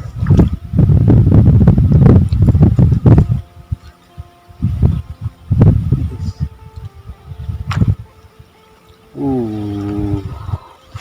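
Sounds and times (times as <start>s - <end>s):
man holding long vocal sound: 9.1s - 10.8s.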